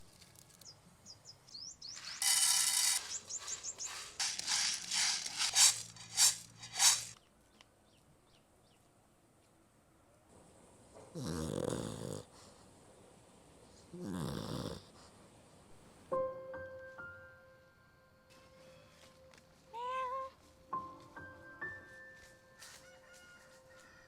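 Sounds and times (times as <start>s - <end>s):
small birds chirping: 0.6s - 6.0s.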